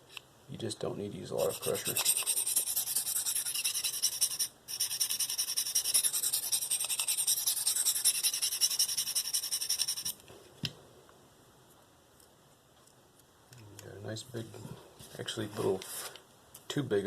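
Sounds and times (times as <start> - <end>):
knife scraping sharpening plate: 1.4 - 10.1.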